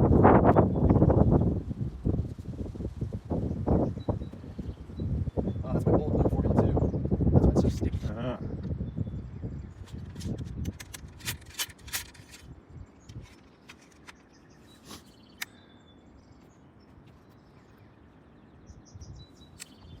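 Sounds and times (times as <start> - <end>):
faint bird chirps: 12.2 - 20.0.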